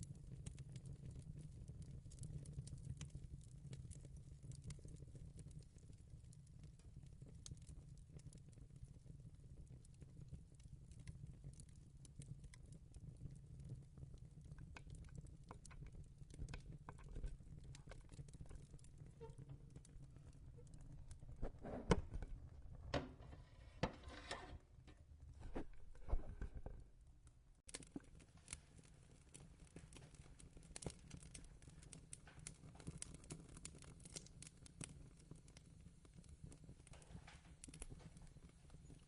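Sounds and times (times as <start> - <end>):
fire crackling and popping: 0.0 - 39.0
knocks and rustles: 21.4 - 26.9.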